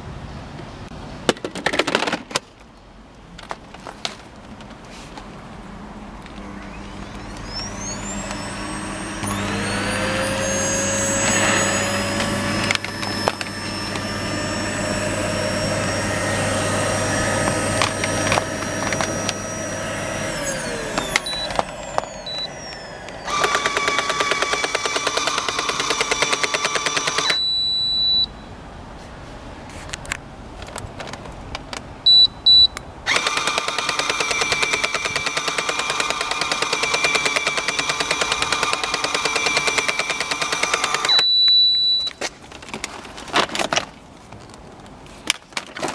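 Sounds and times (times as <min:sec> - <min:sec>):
short high beeps: 0:06.4 - 0:13.8, 0:20.6 - 0:22.9, 0:27.3 - 0:28.5, 0:32.1 - 0:32.8, 0:41.1 - 0:42.2
vacuum cleaner motor whine: 0:06.4 - 0:27.6, 0:33.1 - 0:42.0.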